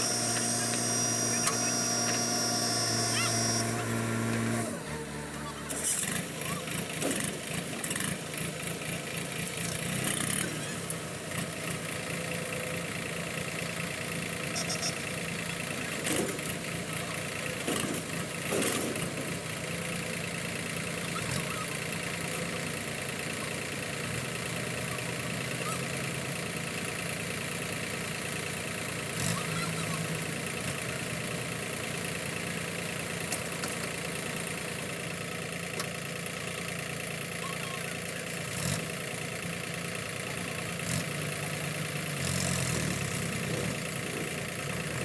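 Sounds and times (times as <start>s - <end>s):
diesel engine idling: 0.0s - 45.0s
short engine knocks: 17.6s - 19.4s.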